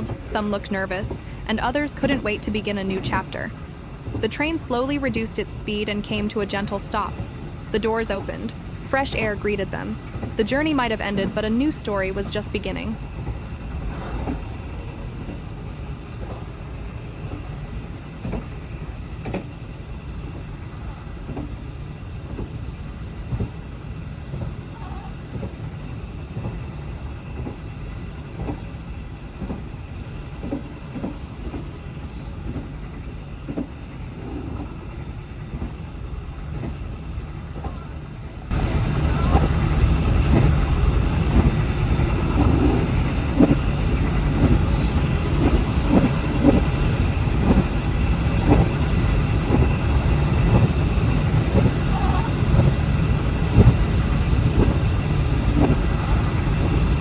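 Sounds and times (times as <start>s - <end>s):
moving train rumbling: 0.0s - 57.0s
wheels clicking over track: 29.4s - 57.0s.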